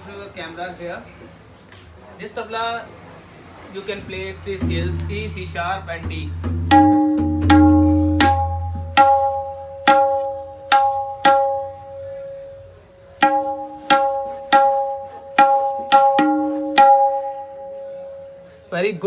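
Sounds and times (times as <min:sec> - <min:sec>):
tabla strokes ringing: 0:04.6 - 0:12.6, 0:13.2 - 0:18.4.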